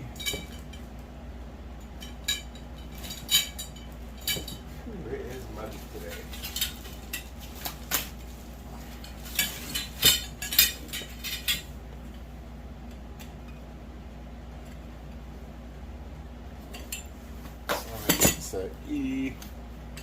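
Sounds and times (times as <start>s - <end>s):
metal poles clinking: 0.0s - 1.0s, 1.8s - 8.2s, 8.8s - 12.2s, 16.6s - 18.6s
low steady hum: 0.0s - 20.0s.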